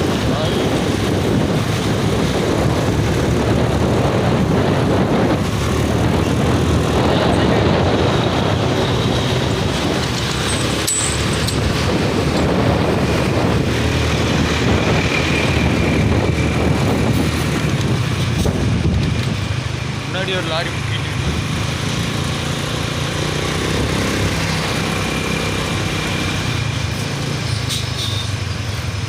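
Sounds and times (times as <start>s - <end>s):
motorcycle engine and road noise: 0.0s - 29.0s.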